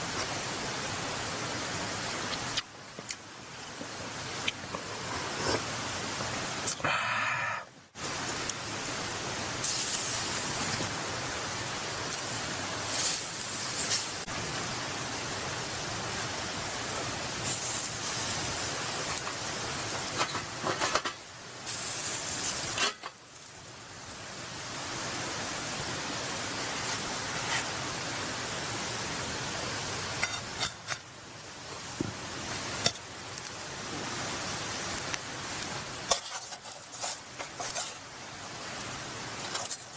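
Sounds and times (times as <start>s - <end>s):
liver sizzling on a grill: 8.0s - 39.9s.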